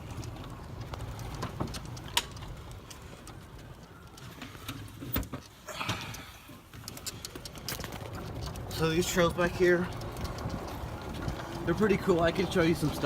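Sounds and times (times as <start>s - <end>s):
golf cart rumble: 0.0s - 13.0s.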